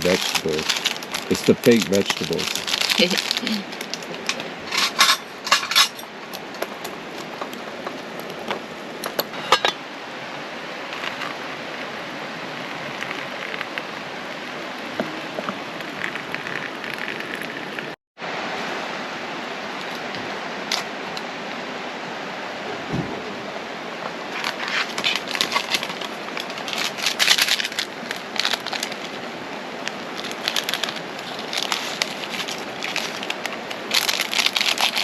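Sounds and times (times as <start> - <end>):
steady rushing hiss: 0.0 - 35.0
pot and utensils clinking: 4.7 - 6.1, 9.3 - 9.8.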